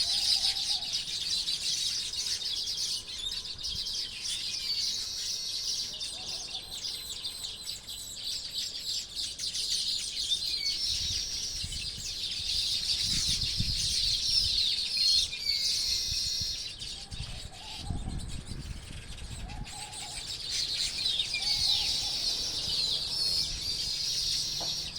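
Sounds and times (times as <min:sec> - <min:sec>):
birds chirping and chattering: 0:00.0 - 0:24.9
low bird calls: 0:00.0 - 0:24.9.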